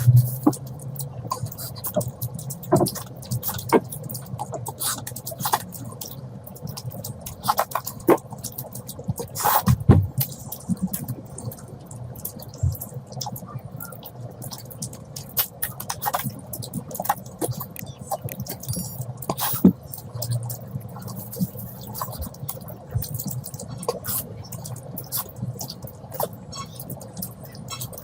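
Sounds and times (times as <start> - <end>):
wet chewing: 0.0 - 28.0
noisy slurp: 1.2 - 11.6, 13.1 - 28.0
lip-smacking clicks: 12.2 - 20.0.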